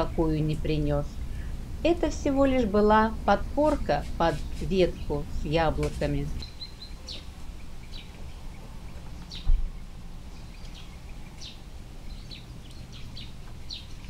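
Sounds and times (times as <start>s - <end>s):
low outdoor rumble: 0.0s - 14.0s
low thump: 9.4s - 9.8s.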